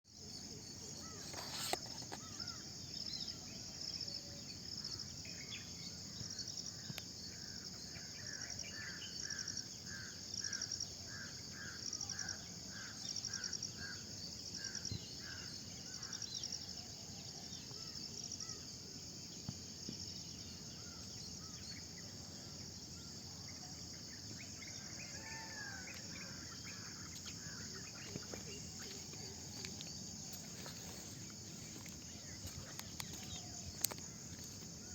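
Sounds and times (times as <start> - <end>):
insects trilling: 0.1 - 34.9
birds gliding calls: 0.8 - 2.7, 20.8 - 34.9.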